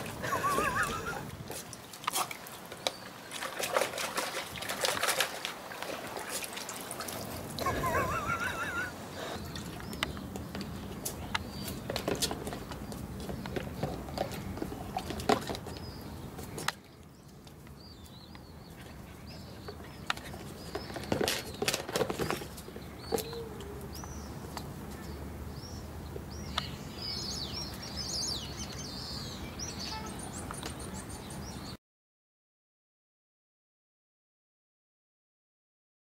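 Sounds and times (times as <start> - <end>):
small birds chirping: 0.0 - 3.6, 7.3 - 31.8.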